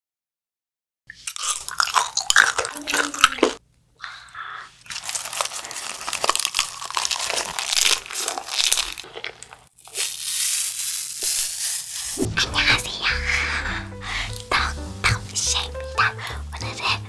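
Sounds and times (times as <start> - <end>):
girl chewing crunchy food: 1.1 - 12.3.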